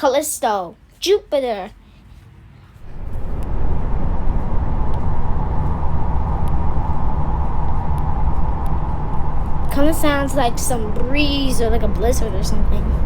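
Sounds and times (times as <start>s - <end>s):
rumbling wind-like noise: 2.8s - 13.0s.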